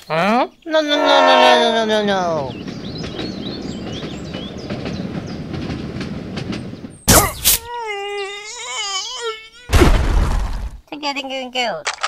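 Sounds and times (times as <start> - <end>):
train rumble: 1.0 - 7.4
wavering voice-like cry: 7.1 - 9.8
loud crash: 9.7 - 10.8.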